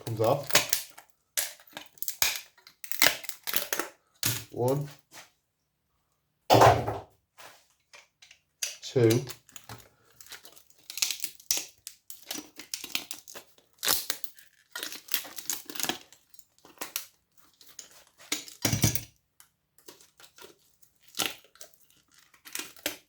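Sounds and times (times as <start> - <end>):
heavier knock: 6.5 - 7.0.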